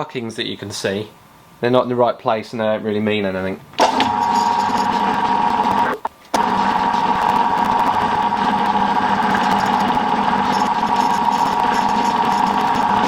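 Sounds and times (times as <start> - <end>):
milling machine whine: 3.8 - 13.0.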